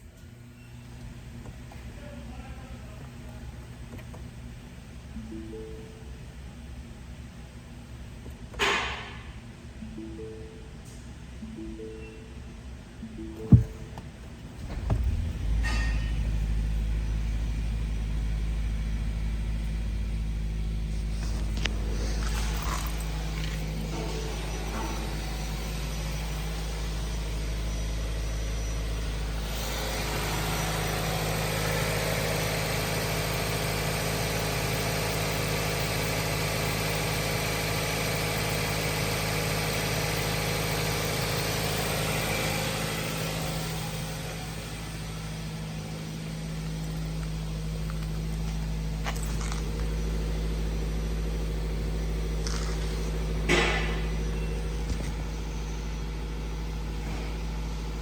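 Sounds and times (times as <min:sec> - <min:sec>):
car engine idling: 0:13.1 - 0:58.0.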